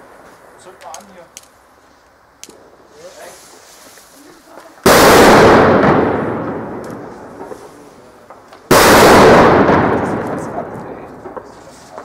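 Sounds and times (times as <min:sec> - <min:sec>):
loud firework bangs: 0:04.8 - 0:12.0.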